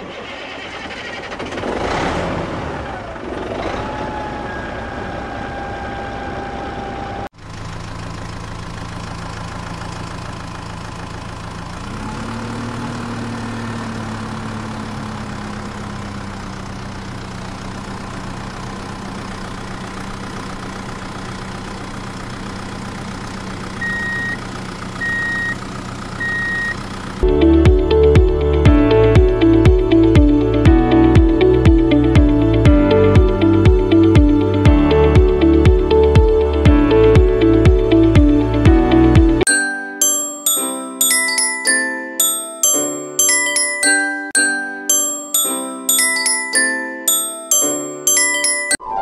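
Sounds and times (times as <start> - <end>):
tractor engine idling: 0.0 - 2.0, 2.8 - 39.9
reversing beeps: 23.8 - 24.4, 25.0 - 25.6, 26.2 - 26.8.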